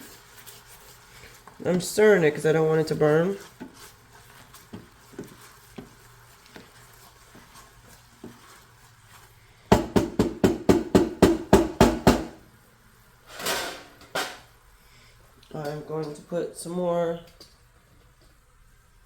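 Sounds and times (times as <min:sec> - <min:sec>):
utensil knocking on pot: 0:09.7 - 0:12.4.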